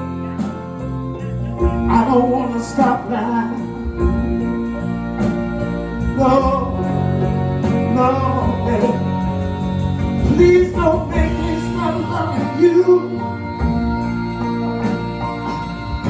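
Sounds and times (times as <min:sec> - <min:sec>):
live band playing soul ballad: 0:00.0 - 0:16.0.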